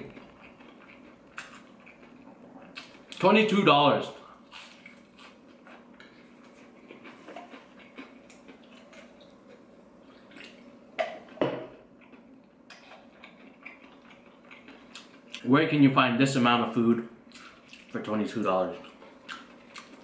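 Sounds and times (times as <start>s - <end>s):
chewing crispy fried chicken: 0.0s - 3.3s, 4.2s - 10.7s, 12.0s - 15.5s, 17.3s - 20.0s
low steady hum: 0.0s - 20.0s.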